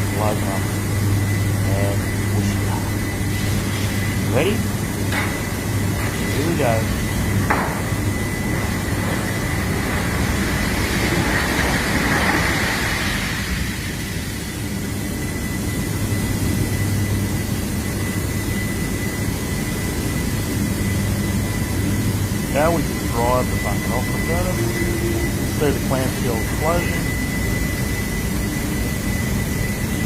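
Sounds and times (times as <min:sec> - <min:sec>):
industrial rumble: 0:00.0 - 0:15.2, 0:19.2 - 0:30.0
low hum: 0:00.0 - 0:30.0
thin high tone: 0:22.6 - 0:28.0.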